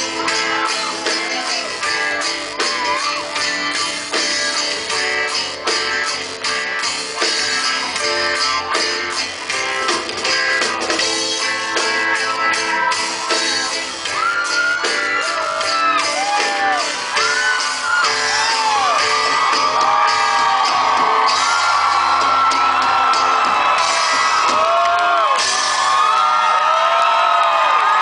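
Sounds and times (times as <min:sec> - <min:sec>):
audience whooping and shouting: 0:00.0 - 0:06.2, 0:11.1 - 0:28.0
live band music: 0:00.0 - 0:26.3.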